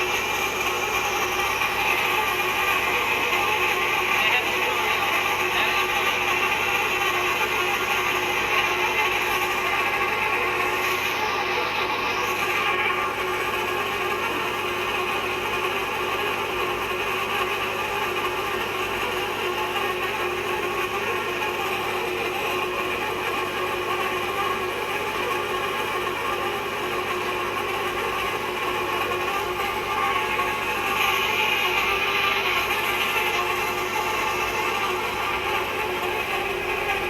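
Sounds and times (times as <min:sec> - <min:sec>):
tapping machine working on pipe: 0:00.0 - 0:37.0.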